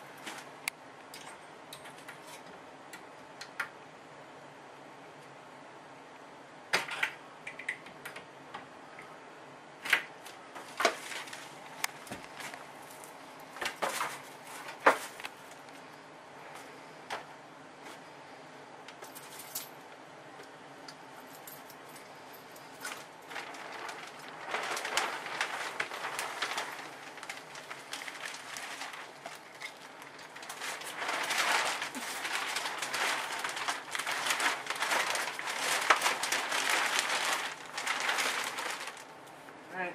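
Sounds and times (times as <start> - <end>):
plastic sheeting crinkling rustle: 0.0 - 0.7, 10.0 - 17.2, 21.2 - 39.9.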